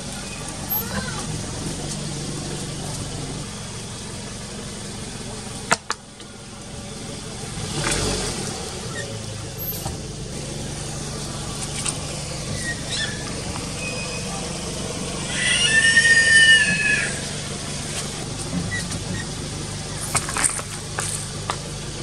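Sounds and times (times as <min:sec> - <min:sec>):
car engine idling: 0:00.0 - 0:22.0
loud high drawn-out cry: 0:15.2 - 0:17.4.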